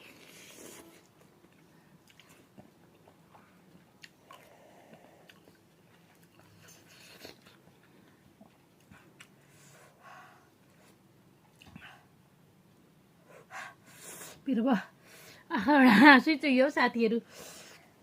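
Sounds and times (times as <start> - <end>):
person chewing: 0.0 - 9.4.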